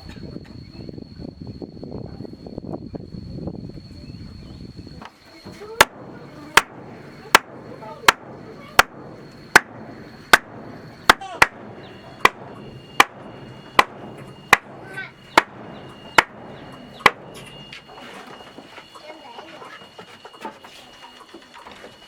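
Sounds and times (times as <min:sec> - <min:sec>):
tool striking wood: 0:05.8 - 0:18.2.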